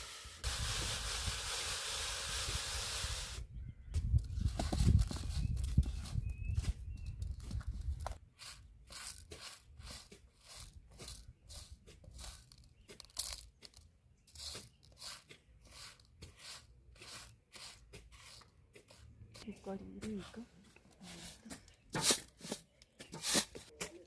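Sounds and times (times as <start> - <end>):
rasping scraping strokes: 8.4 - 12.6, 14.3 - 23.7.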